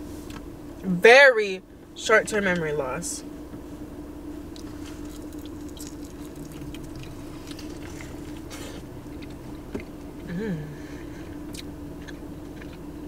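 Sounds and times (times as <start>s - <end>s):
steady low hum: 0.0s - 13.0s
chewing and wet mouth sounds: 4.5s - 10.3s, 11.4s - 13.0s.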